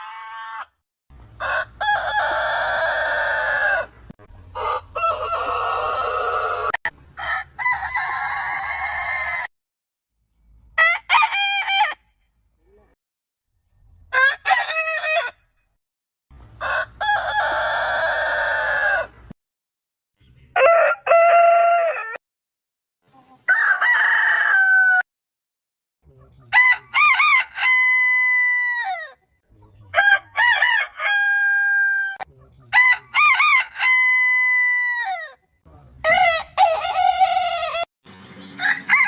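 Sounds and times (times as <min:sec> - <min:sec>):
roosters crowing: 0:00.0 - 0:09.5, 0:10.8 - 0:12.0, 0:14.1 - 0:15.5, 0:16.5 - 0:19.3, 0:20.5 - 0:22.2, 0:23.4 - 0:25.1, 0:26.5 - 0:29.2, 0:29.9 - 0:35.4, 0:36.0 - 0:37.9, 0:38.5 - 0:39.0.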